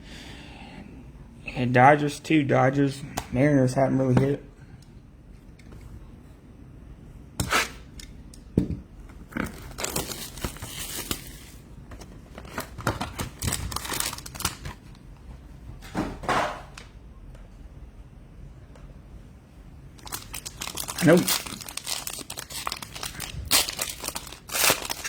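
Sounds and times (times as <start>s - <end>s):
plastic wrapper crinkling and tearing: 9.4s - 11.6s, 12.4s - 14.8s, 20.0s - 25.0s.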